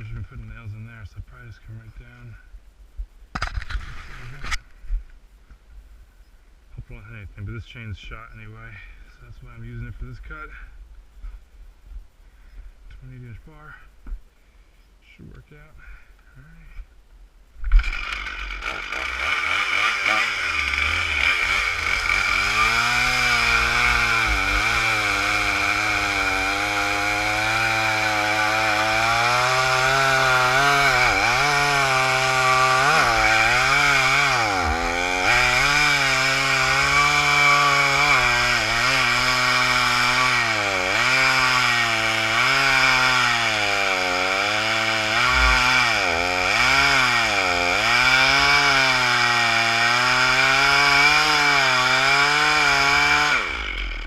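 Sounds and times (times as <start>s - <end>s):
chainsaw cutting through trunk: 17.7s - 54.0s.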